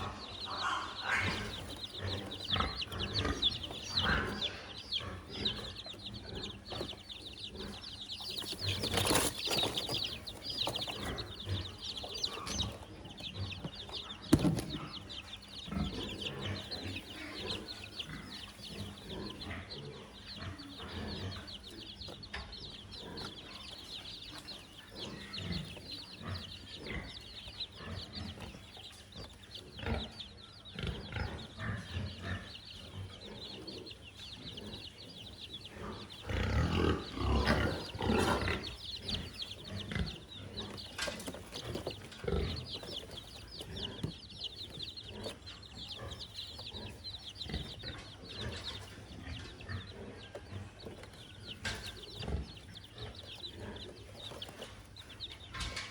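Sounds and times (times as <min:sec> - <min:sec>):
chickens clucking: 0:00.0 - 0:55.9.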